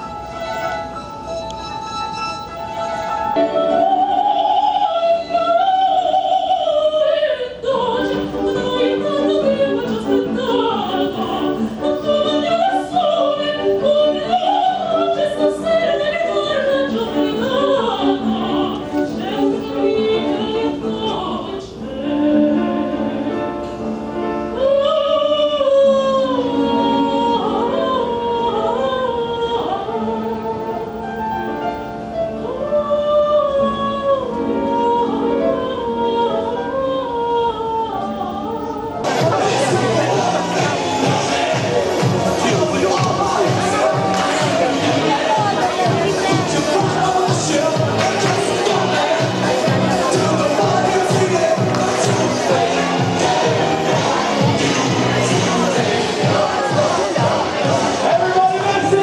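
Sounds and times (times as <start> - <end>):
operatic voice singing: 33.4 - 59.0.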